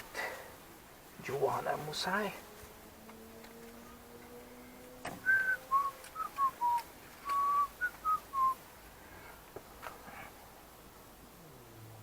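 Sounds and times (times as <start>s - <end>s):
person whistling a tune: 5.2s - 8.6s.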